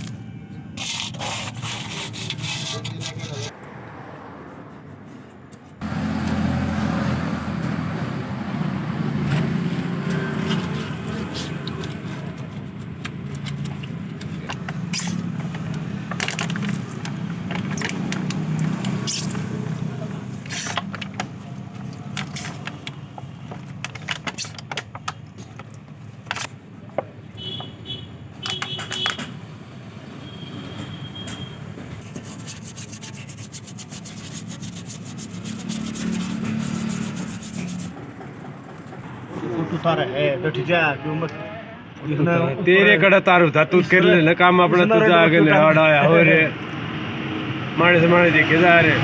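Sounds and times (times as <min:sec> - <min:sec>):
clicks and knocks of tools: 0:11.4 - 0:19.5, 0:28.4 - 0:29.4.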